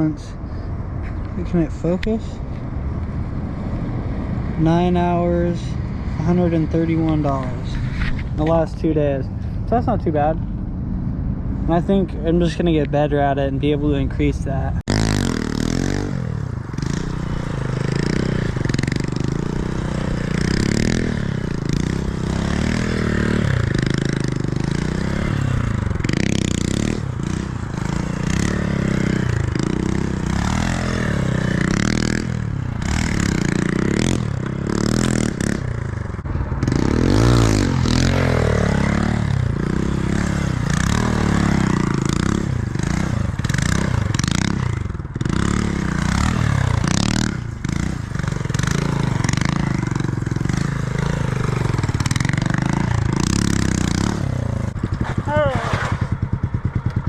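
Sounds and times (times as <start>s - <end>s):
motorcycle engine running: 13.8s - 57.0s.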